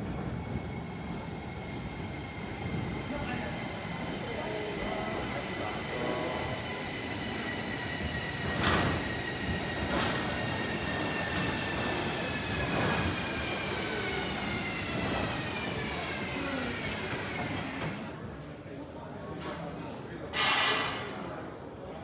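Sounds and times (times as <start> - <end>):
tram motor whine: 3.9 - 18.2.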